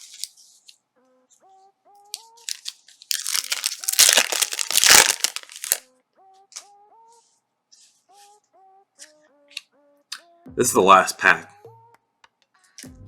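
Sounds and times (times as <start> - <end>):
plastic wrapper crinkling: 0.0 - 0.3, 2.2 - 5.8
faint background music: 0.0 - 13.0.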